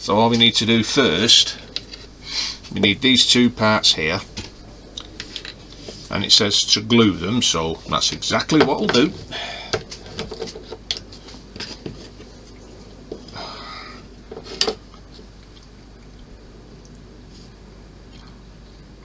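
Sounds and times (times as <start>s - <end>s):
plastic parts clicking and tapping: 7.9s - 12.3s.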